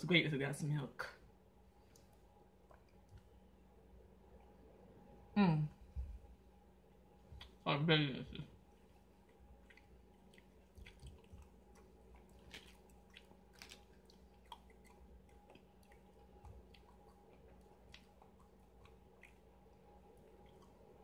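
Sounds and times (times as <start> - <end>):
person chewing: 8.6 - 21.0.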